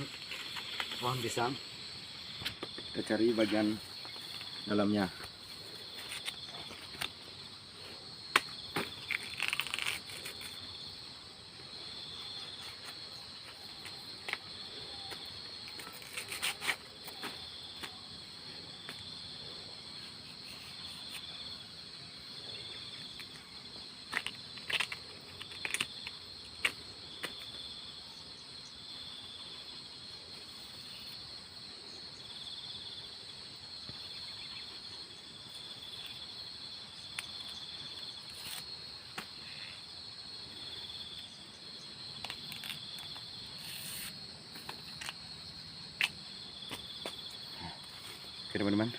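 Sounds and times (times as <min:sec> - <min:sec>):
crickets chirring: 0:00.0 - 0:48.9
banana stem snapping: 0:08.3 - 0:10.6, 0:42.2 - 0:43.2.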